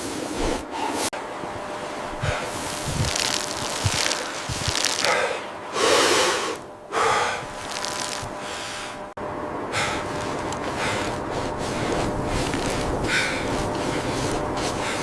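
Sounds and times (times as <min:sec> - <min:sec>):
steady hiss: 0:00.0 - 0:09.2
person breathing heavily: 0:00.3 - 0:01.1, 0:01.9 - 0:09.1, 0:09.7 - 0:15.0.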